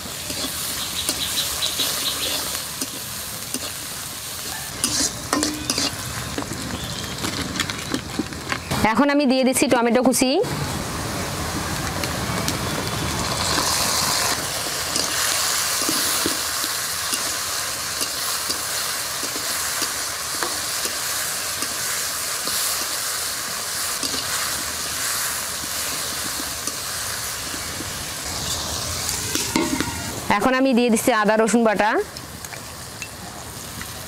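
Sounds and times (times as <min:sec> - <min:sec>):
tomatoes sizzling in hot oil: 0:00.0 - 0:34.0
metal spatula scraping a pan: 0:00.2 - 0:03.8, 0:04.7 - 0:06.0.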